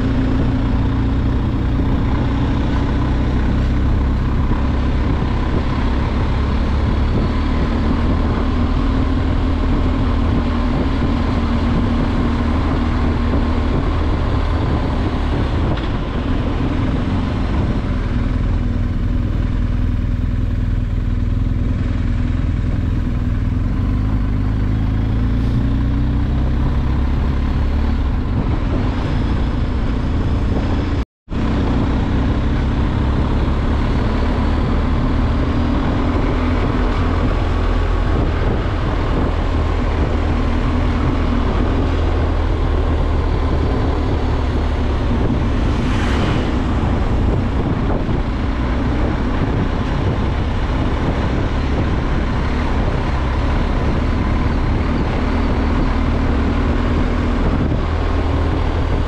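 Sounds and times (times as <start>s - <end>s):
motorcycle engine running: 0.0s - 59.0s
road noise: 0.0s - 59.0s.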